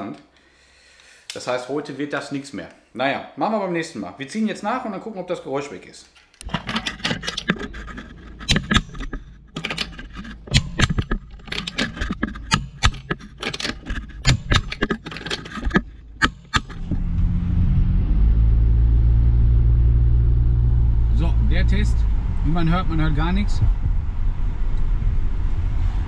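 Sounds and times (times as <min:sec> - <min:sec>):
car low rumble: 0:06.4 - 0:26.0
wrench clicking metallically: 0:08.4 - 0:16.9.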